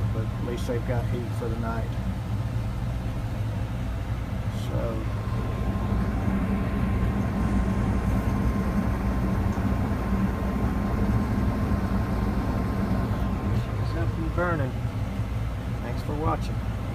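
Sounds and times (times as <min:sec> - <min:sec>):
gas furnace humming: 0:00.0 - 0:16.9
faint thin whine: 0:04.4 - 0:16.6.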